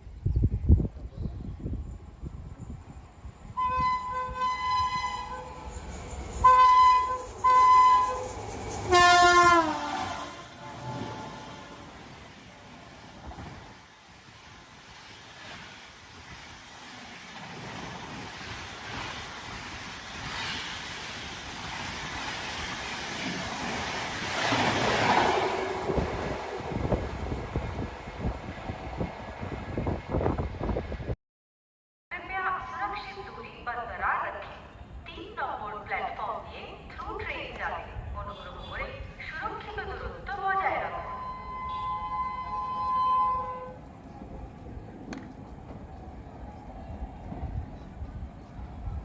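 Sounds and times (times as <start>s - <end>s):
wind on microphone: 0.0s - 5.2s, 24.9s - 31.2s
express train rushing roar: 0.2s - 31.1s, 37.9s - 49.0s
train horn blasts: 3.6s - 5.6s, 6.4s - 8.3s, 8.9s - 12.0s, 41.0s - 44.0s.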